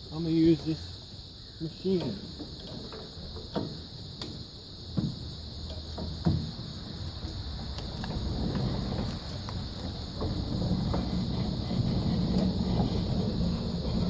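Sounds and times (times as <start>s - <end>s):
crickets chirping: 0.0s - 14.0s
metal clunks and knocks: 1.9s - 6.9s
low mechanical rumble: 3.4s - 14.0s.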